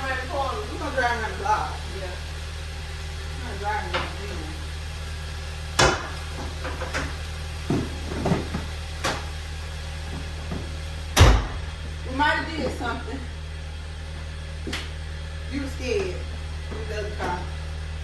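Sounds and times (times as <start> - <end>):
car engine idling: 0.0 - 18.0
heavy slams: 11.1 - 11.9.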